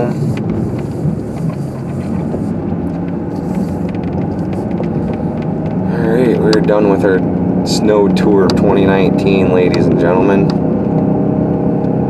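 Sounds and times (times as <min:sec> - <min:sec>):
tyre noise on snow: 0:00.0 - 0:02.6, 0:03.3 - 0:07.0
car engine from inside cabin: 0:00.0 - 0:12.0.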